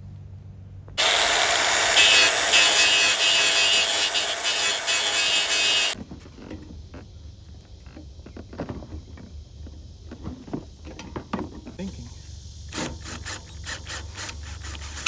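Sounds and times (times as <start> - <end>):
welder hissing: 1.0 - 6.0.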